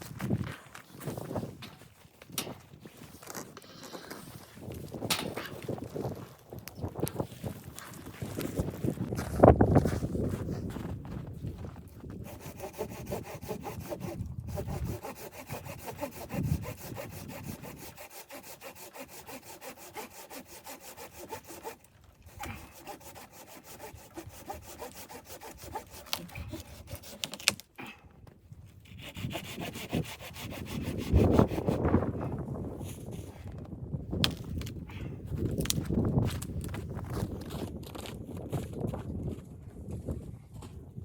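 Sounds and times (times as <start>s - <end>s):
saw cutting wood: 12.2s - 27.6s, 28.9s - 31.8s.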